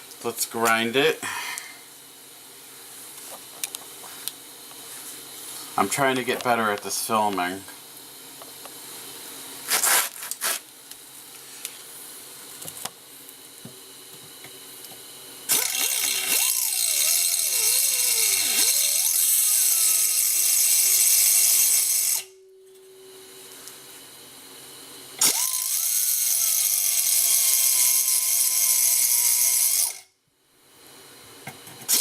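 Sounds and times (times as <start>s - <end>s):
angle grinder grinding metal: 15.5s - 22.4s, 25.2s - 30.1s.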